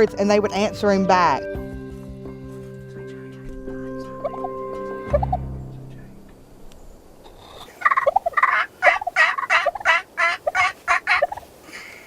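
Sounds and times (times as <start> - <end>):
raspy turkey yelps: 7.3 - 11.5.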